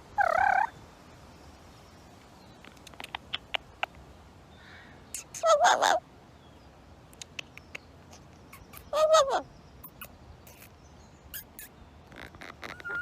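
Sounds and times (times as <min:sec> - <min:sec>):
parrot calls: 0:05.2 - 0:06.0, 0:08.5 - 0:10.7, 0:11.3 - 0:13.0.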